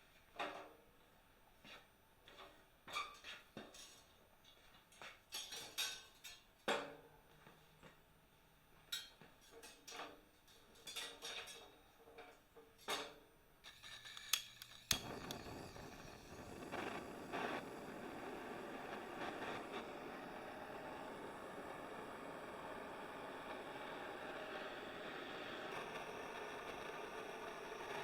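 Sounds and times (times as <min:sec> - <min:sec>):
steady hiss: 0:13.7 - 0:28.0.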